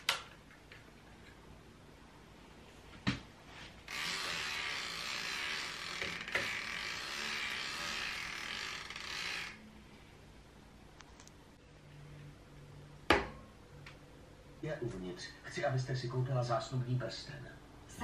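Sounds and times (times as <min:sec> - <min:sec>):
bicycle freehub buzzing: 0:03.8 - 0:09.7.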